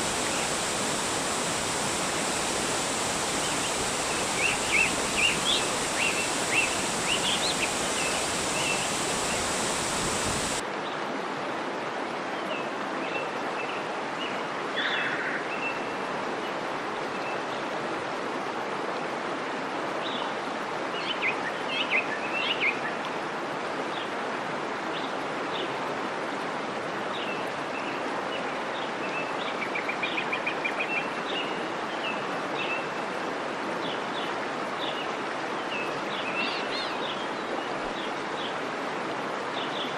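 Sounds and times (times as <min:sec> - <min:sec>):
small birds chirping: 0:00.0 - 0:10.6
waterfall rushing: 0:00.0 - 0:10.6.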